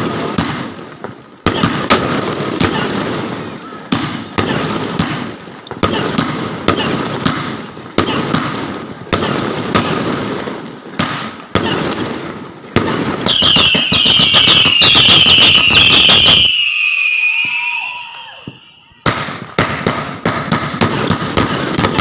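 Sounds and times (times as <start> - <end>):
fireworks bangs with crackle: 0.0 - 22.0
shrill firework whistling: 13.3 - 19.3.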